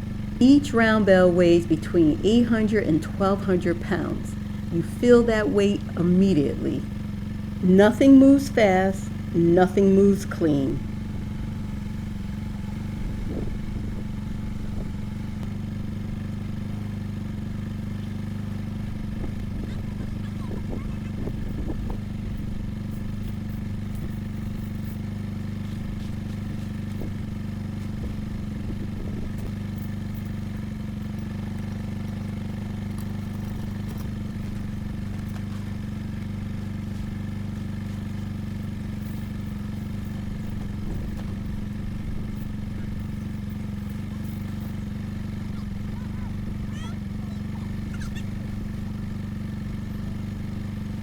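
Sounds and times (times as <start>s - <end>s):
atv engine running: 0.0s - 51.0s.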